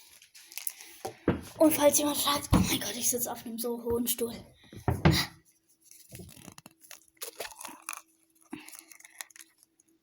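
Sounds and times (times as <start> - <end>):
plastic packaging crinkling: 0.0 - 1.1, 5.8 - 10.0.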